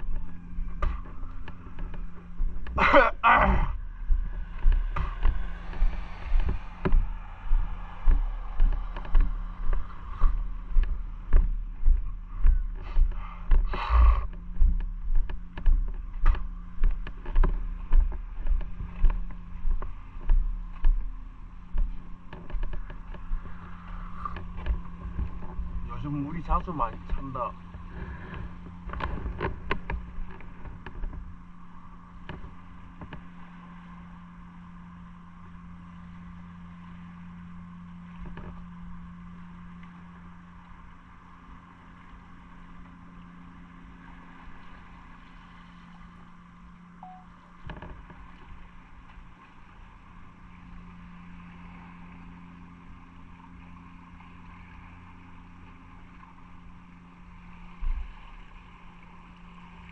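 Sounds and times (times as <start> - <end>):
road and wind noise: 0.0 - 52.3
low thump: 3.4 - 21.1.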